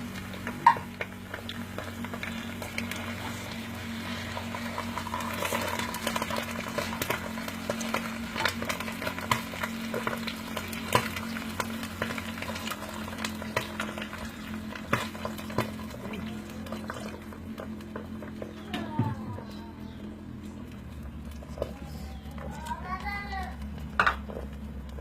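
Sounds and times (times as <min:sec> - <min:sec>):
food sizzling in a pan: 0:00.0 - 0:16.9.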